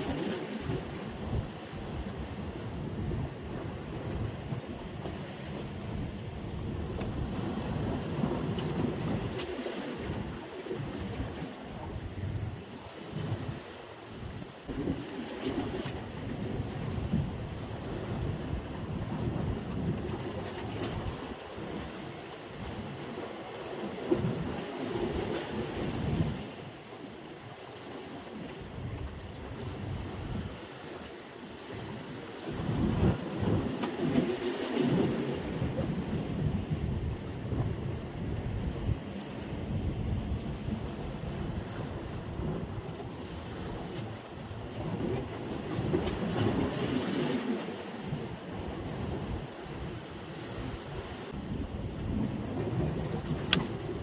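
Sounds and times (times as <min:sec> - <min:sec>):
wind on microphone: 0:00.0 - 0:27.6, 0:28.2 - 0:54.0
sea surf: 0:00.0 - 0:54.0.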